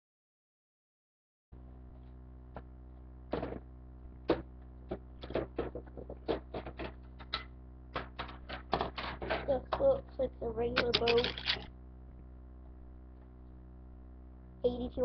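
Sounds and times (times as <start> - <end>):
steady low hum: 1.6 - 15.0
irregular clicks and knocks: 4.2 - 9.9, 10.8 - 11.7.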